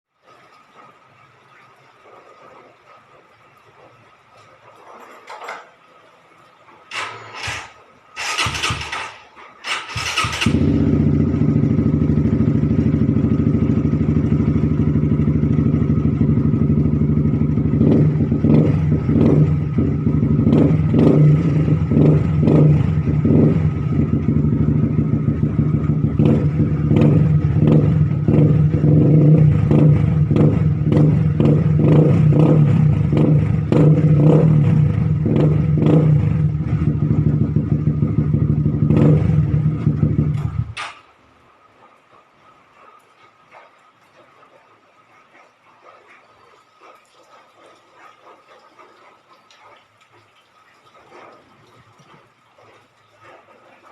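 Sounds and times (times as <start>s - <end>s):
motorcycle engine running: 10.0s - 40.8s.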